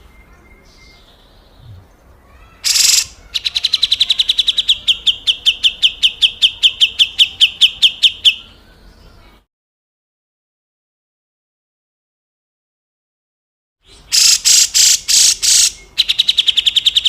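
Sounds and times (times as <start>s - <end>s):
bird sharp chipping notes: 1.6s - 3.7s
bird harsh rasping call: 2.3s - 8.6s, 13.9s - 17.0s.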